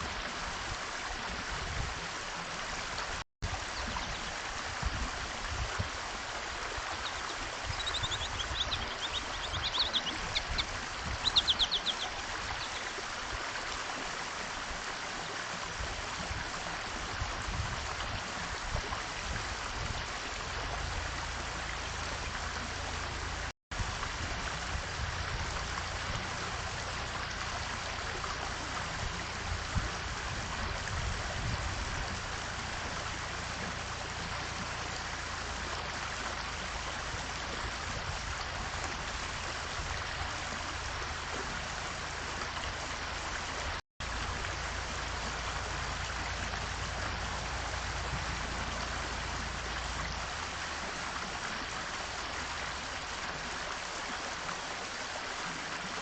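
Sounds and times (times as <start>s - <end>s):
small birds chirping: 6.9s - 13.0s.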